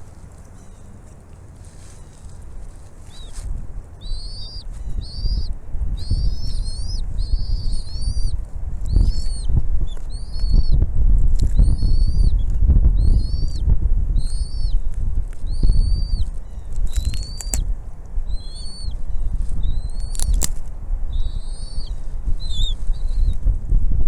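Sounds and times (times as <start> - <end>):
heavy low rumble: 0.0 - 24.0
eagle calling: 4.0 - 10.8, 11.6 - 12.4, 13.0 - 13.6, 14.2 - 17.6, 18.3 - 20.5, 21.1 - 23.4.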